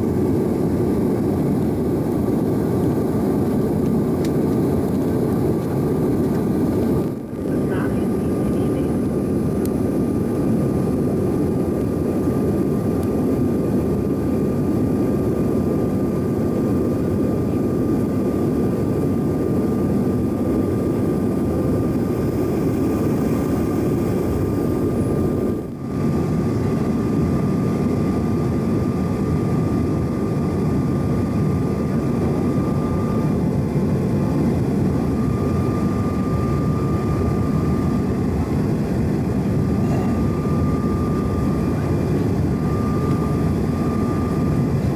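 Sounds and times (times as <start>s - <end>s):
jet engine cabin rush: 0.0s - 14.7s, 18.2s - 44.9s
thin steady whine: 19.4s - 44.9s.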